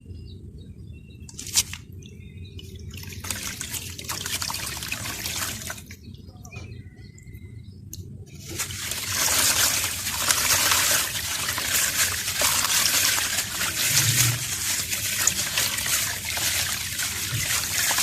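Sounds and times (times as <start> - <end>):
water trickling and dripping: 2.8 - 6.0, 8.5 - 18.0
mugs crumbling in water: 3.0 - 5.9, 8.4 - 18.0.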